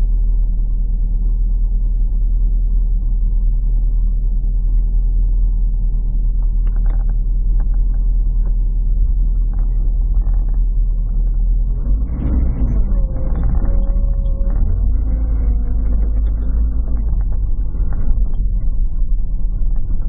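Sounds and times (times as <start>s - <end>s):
car engine idling: 6.1s - 20.0s.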